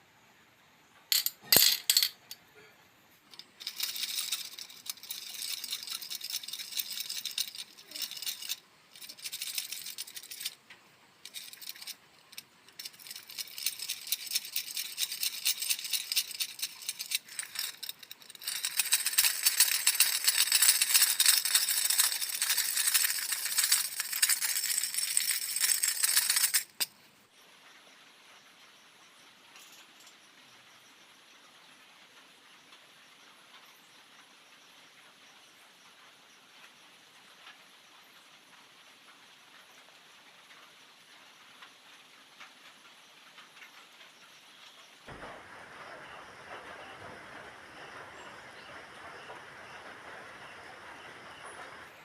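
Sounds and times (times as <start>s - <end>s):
sharp clacks: 3.3s - 27.0s, 45.1s - 52.0s.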